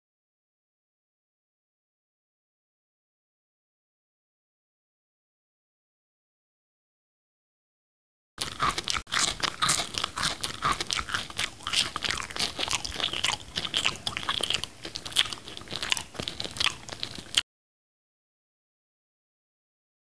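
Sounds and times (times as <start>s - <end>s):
chewing crunchy fruit: 8.4s - 17.4s.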